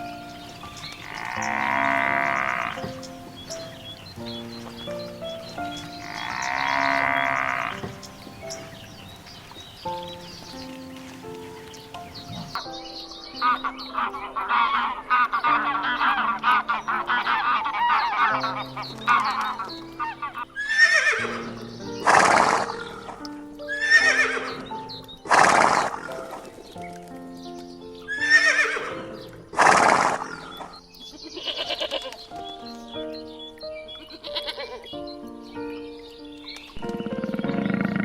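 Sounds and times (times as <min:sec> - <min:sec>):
background music with held notes: 0:00.0 - 0:38.0
warbling animal calls: 0:00.4 - 0:12.6, 0:13.4 - 0:24.7, 0:25.3 - 0:26.6, 0:29.6 - 0:32.2
horse neighing: 0:00.9 - 0:03.6, 0:06.0 - 0:08.1, 0:14.0 - 0:24.7, 0:25.3 - 0:26.3, 0:28.1 - 0:29.0, 0:29.6 - 0:32.1.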